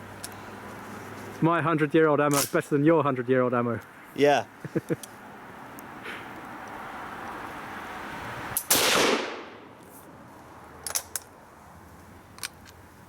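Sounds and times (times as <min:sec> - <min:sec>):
rifle shot: 0:08.6 - 0:09.7.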